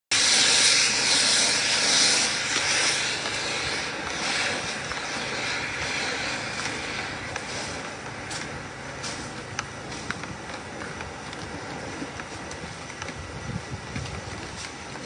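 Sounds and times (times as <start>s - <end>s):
blower rushing air hiss: 0.1s - 10.3s.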